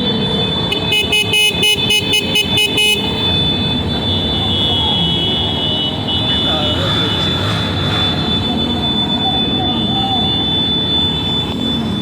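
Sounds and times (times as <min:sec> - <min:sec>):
vehicle horn toots: 0:00.2 - 0:08.1.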